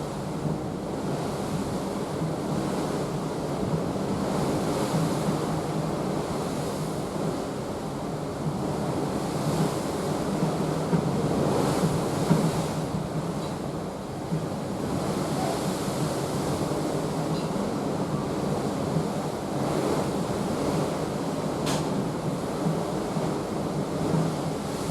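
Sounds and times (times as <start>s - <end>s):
sea water rushing along ship: 0.0s - 24.9s.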